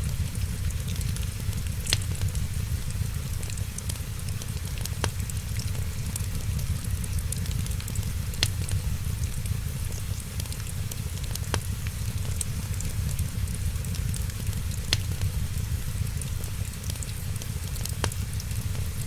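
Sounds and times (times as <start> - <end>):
low fire rumble: 0.0 - 19.0
wood fire crackling: 0.0 - 19.0
sharp fire pops: 0.2 - 2.9, 11.4 - 18.3.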